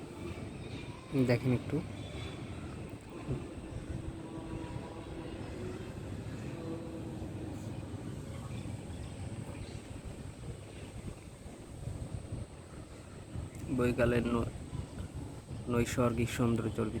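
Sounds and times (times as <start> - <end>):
low rumble of city traffic: 0.0 - 17.0.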